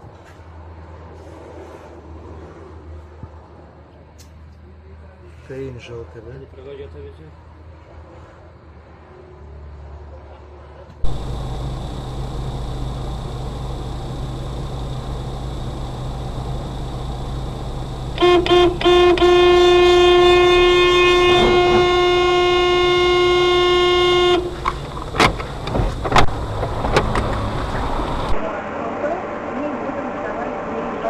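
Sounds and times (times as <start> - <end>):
car horn: 11.0 - 28.4
vehicle road and engine noise: 11.0 - 28.4.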